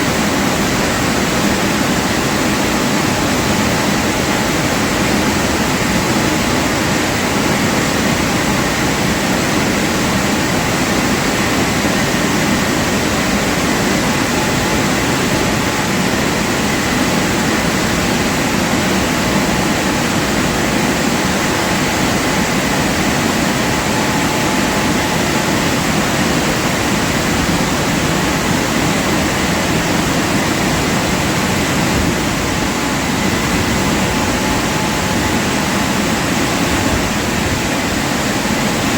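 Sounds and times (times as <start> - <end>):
car wash water jets rushing: 0.0 - 38.9
faint constant whine: 0.0 - 38.9.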